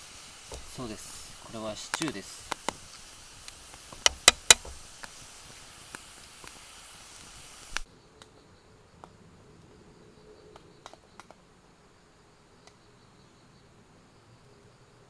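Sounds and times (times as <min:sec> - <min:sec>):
stew hissing over campfire: 0:00.0 - 0:07.9
campfire pops and clicks: 0:00.0 - 0:08.3.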